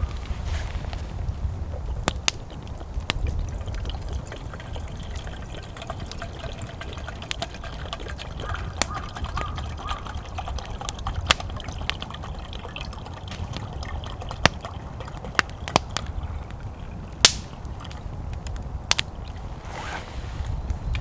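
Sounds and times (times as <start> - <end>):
sharp fire pops: 0.0 - 3.4, 11.2 - 12.0, 13.2 - 20.1
wood fire crackling: 0.0 - 21.0.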